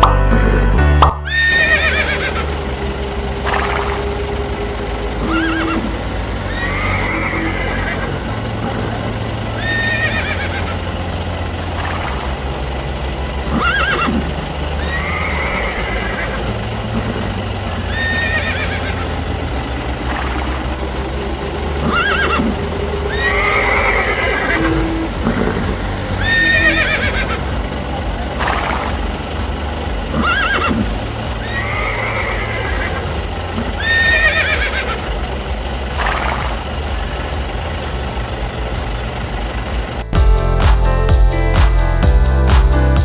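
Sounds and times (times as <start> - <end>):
electronic music track: 0.0 - 10.0, 15.1 - 37.2, 39.6 - 43.0
background music: 0.0 - 43.0
horse whinnying: 1.3 - 2.4, 5.2 - 5.9, 6.5 - 8.2, 9.6 - 10.7, 13.5 - 14.2, 14.8 - 16.4, 17.9 - 19.0, 21.8 - 22.5, 23.1 - 25.3, 26.2 - 27.4, 30.2 - 33.0, 33.8 - 35.0.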